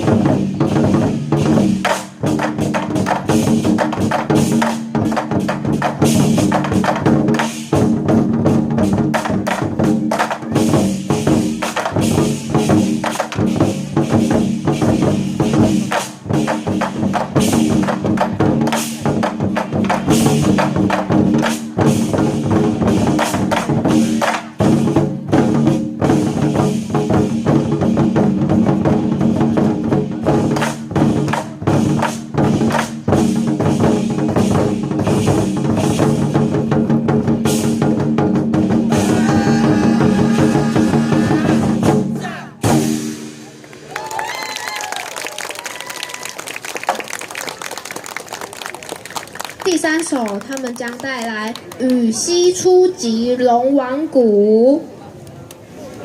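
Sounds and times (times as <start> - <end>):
war drums beating rapidly: 0.0 - 43.5.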